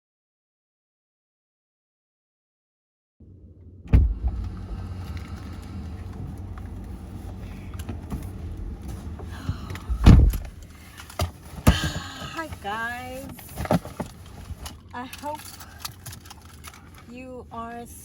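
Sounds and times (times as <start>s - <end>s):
car interior rumble: 3.2s - 18.0s
loud thump: 3.8s - 4.8s, 9.9s - 10.6s.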